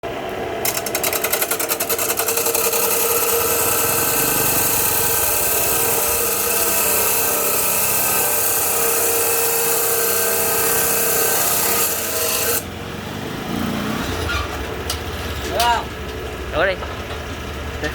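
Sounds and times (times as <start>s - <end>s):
cut-off saw grinding steel: 0.6s - 12.7s
saw motor whine: 0.6s - 12.7s.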